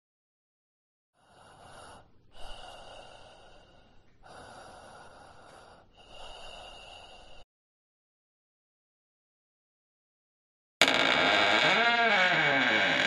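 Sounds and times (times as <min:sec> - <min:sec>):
person breathing heavily: 0:01.2 - 0:07.4.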